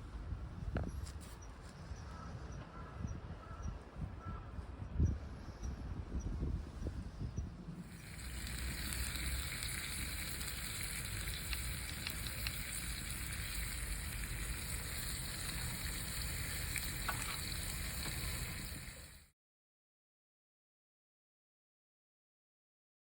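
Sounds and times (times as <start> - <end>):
wood fire hissing and crackling: 7.8 - 19.3.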